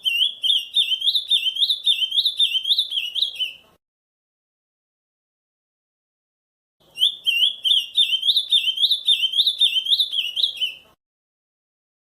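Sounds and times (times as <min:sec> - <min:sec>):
bird singing whistled notes: 0:00.0 - 0:03.6, 0:06.8 - 0:10.9.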